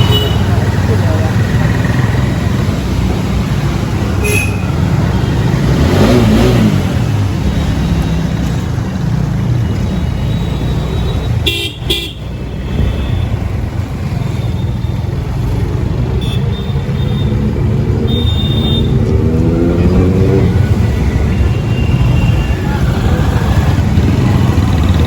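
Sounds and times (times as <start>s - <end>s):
motorcycle engine rumble: 0.0s - 25.0s
vehicle horn honking: 4.2s - 4.8s, 11.4s - 13.3s, 18.1s - 19.0s.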